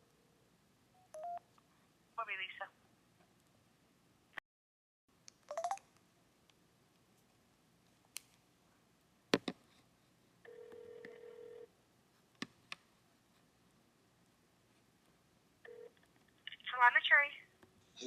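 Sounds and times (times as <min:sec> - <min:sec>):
telephone dialing tones: 0:01.1 - 0:01.4, 0:05.5 - 0:05.8, 0:10.5 - 0:11.7, 0:15.7 - 0:15.9
telephone ringback tone: 0:01.1 - 0:01.4, 0:10.5 - 0:11.7, 0:15.7 - 0:15.9.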